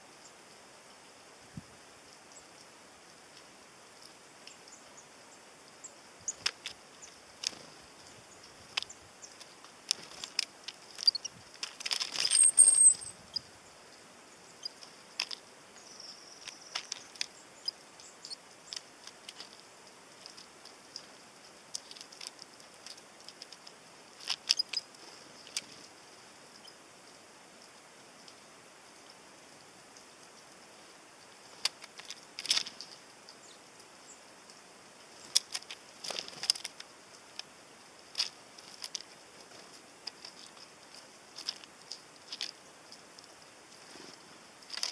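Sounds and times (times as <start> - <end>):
beaks pecking at seeds: 2.3 - 27.7, 29.9 - 44.9
high bird chirp: 10.9 - 11.4, 12.2 - 13.5, 15.8 - 18.4.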